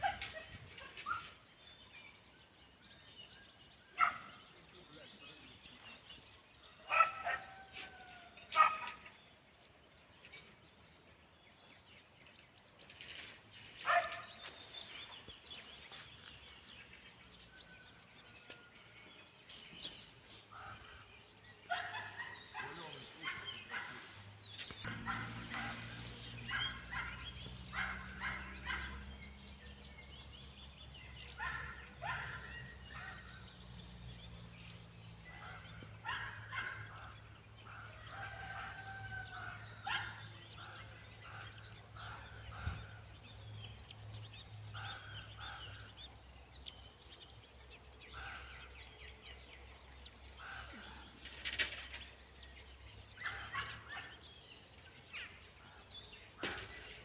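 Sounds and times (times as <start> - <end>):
poultry calling: 20.6 - 29.1.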